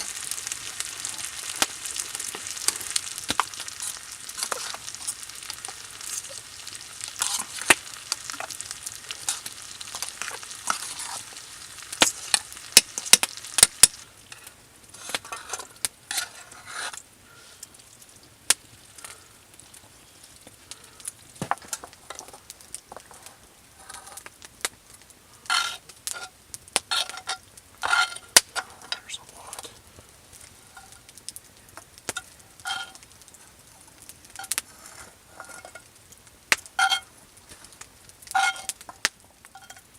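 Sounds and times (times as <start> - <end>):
food sizzling in a pan: 0.0 - 39.9
utensil scraping pan: 2.2 - 6.4, 7.0 - 11.4, 14.3 - 17.0, 25.5 - 26.3, 26.9 - 29.1, 32.7 - 33.0, 34.4 - 35.9, 36.8 - 37.1, 38.3 - 38.8.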